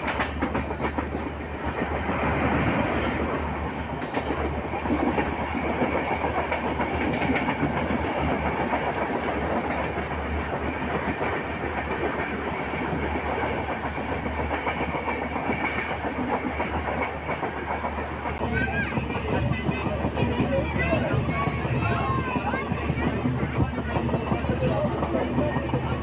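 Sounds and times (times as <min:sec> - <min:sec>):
train wheels on rails: 0:00.0 - 0:26.0.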